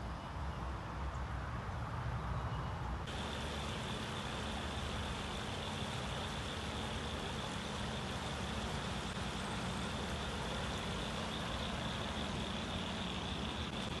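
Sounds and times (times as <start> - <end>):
creek water rushing: 3.1 - 14.0.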